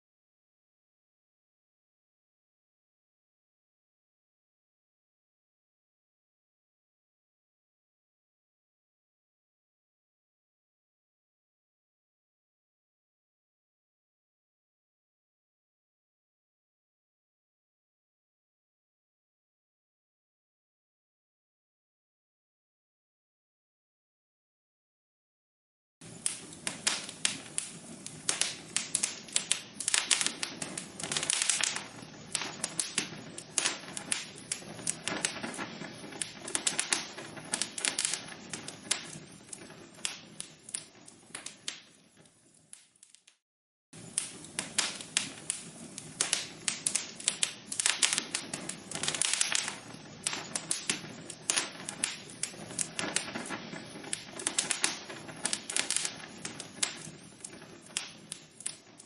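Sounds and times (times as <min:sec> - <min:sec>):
hiss of burning wood: 0:26.0 - 0:43.3, 0:44.0 - 0:59.0
log fire crackling and popping: 0:26.0 - 0:43.4, 0:44.0 - 0:59.0.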